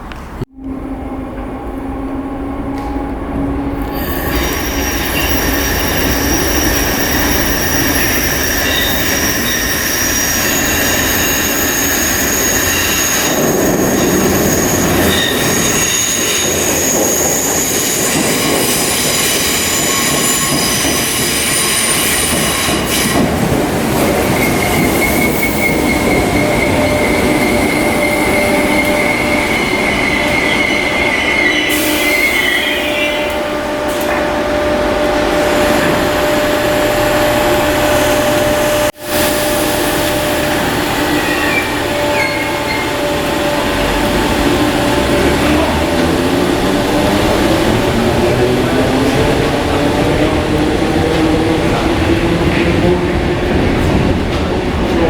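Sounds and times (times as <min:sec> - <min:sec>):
train wheels rumbling on track: 0:00.0 - 0:55.0
high-pitched wheel squeal: 0:03.8 - 0:23.2, 0:24.2 - 0:33.4, 0:41.0 - 0:45.6.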